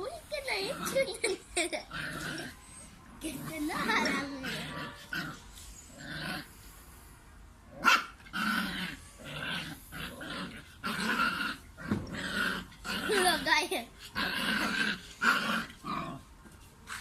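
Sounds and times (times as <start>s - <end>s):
puppy growling: 0.4s - 2.6s, 3.2s - 6.5s, 7.7s - 13.5s, 14.1s - 16.3s.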